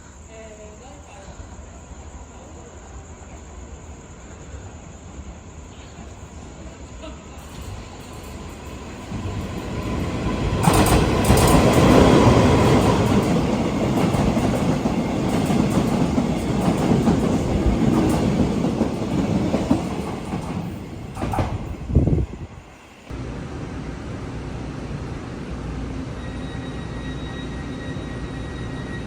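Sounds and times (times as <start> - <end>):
train wheels clattering on rails: 7.4 - 21.9.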